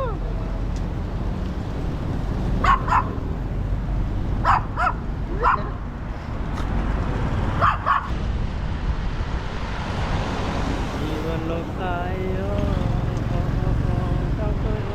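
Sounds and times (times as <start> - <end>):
motorbike rumble: 0.0 - 14.9
dog barking in high yelps: 2.6 - 3.2, 4.4 - 5.8, 7.6 - 8.1.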